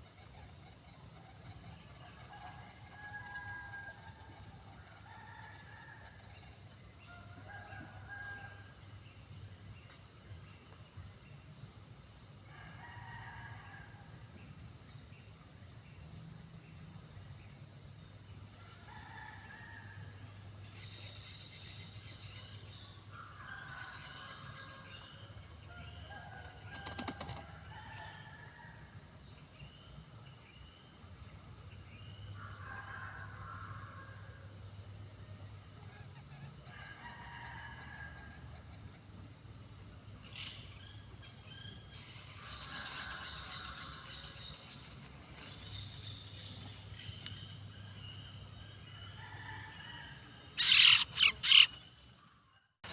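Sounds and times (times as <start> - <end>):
insects droning: 0.0 - 52.9
distant rooster crowing: 23.1 - 29.0, 35.9 - 38.6, 48.8 - 51.7
small birds chirping: 50.6 - 51.8.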